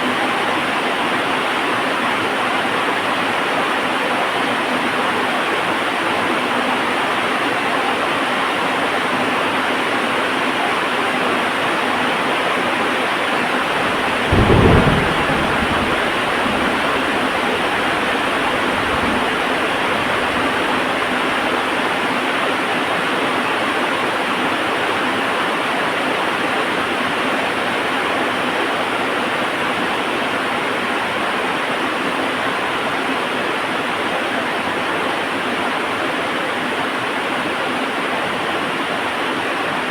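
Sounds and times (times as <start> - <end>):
heavy rain falling: 13.0 - 23.3
thunderclap rumbling: 13.4 - 22.1.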